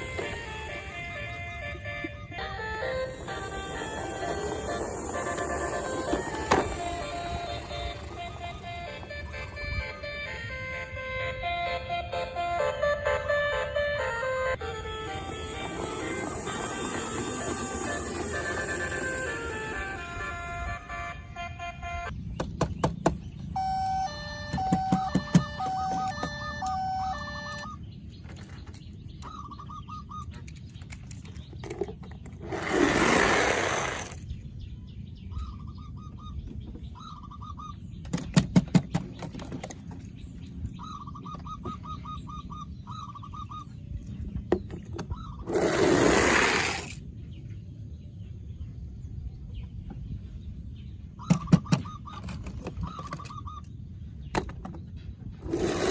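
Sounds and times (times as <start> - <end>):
toy beeping melody: 0.0 - 22.1, 23.5 - 27.8.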